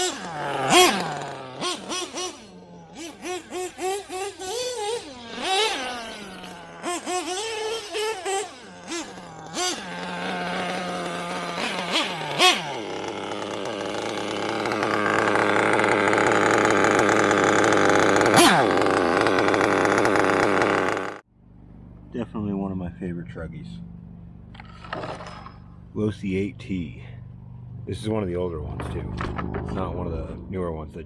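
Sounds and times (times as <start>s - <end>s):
small nitro engine revving: 0.0s - 21.2s.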